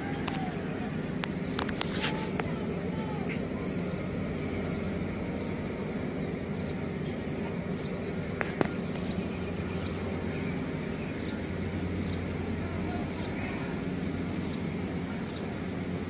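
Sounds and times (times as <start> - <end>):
low outdoor rumble: 0.0 - 16.0
bird chirping: 8.8 - 12.3, 14.4 - 15.5.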